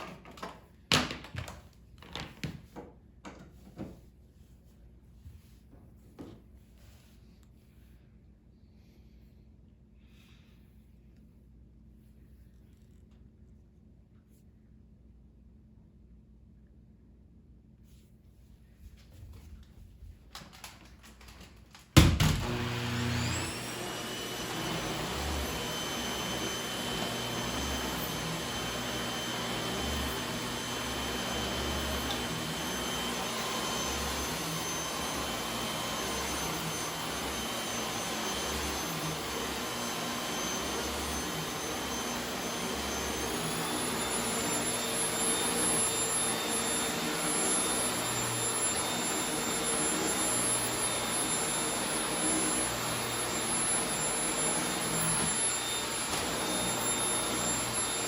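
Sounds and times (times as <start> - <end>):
vacuum cleaner running: 20.3 - 58.0.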